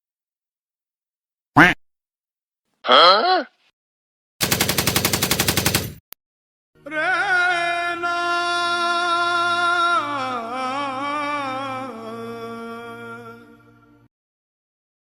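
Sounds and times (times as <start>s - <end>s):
rapid rattling burst: 4.4s - 6.0s.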